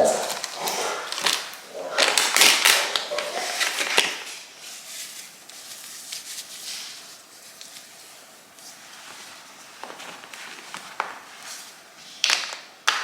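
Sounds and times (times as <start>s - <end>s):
packaging rustling with clicks: 0.0s - 4.4s.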